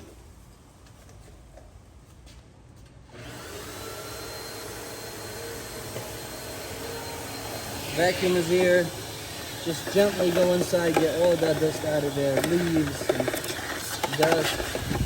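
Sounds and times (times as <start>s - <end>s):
vacuum cleaner running: 3.1s - 15.0s.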